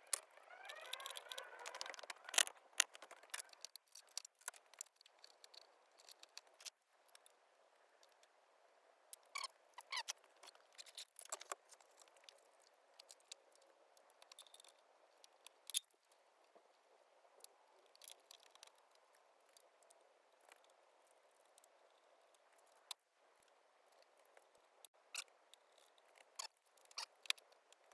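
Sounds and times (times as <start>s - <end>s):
small squeaks: 0.0s - 3.7s, 9.2s - 11.6s, 25.2s - 27.4s.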